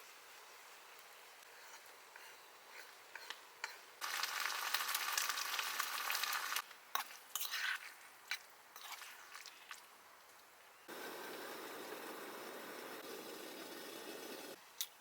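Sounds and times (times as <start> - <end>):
food sizzling in a pan: 4.0 - 6.6.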